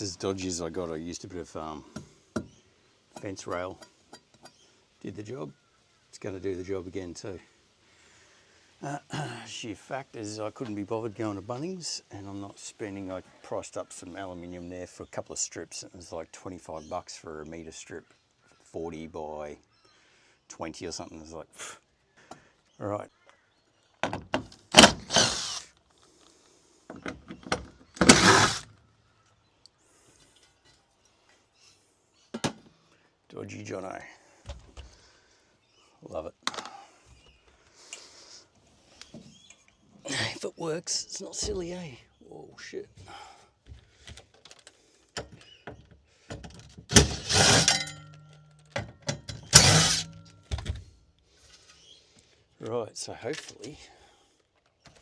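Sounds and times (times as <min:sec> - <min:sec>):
harsh rattling scrapes: 0:28.0 - 0:28.7, 0:46.9 - 0:47.9, 0:49.5 - 0:50.2.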